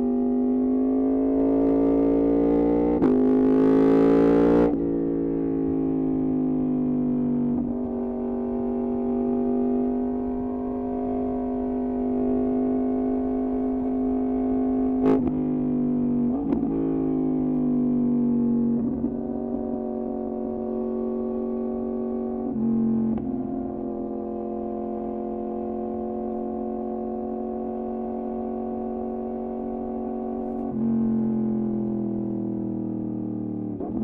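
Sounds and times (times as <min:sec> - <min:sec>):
motorcycle engine at high revs: 0:18.4 - 0:31.3.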